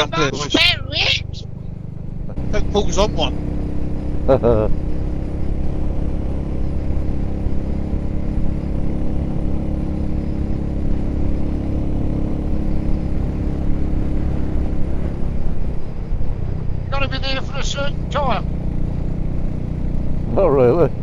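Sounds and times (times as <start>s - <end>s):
motorcycle engine cruising: 0.0s - 21.0s
road and wind noise: 0.0s - 21.0s.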